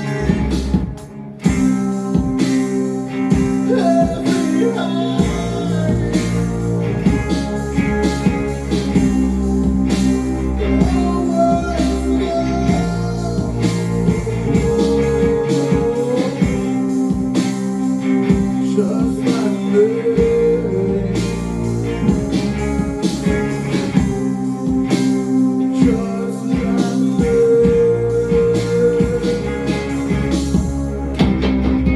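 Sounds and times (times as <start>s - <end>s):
sliding lead guitar note: 0.0s - 31.9s
slow rock song on acoustic guitars: 0.0s - 31.9s.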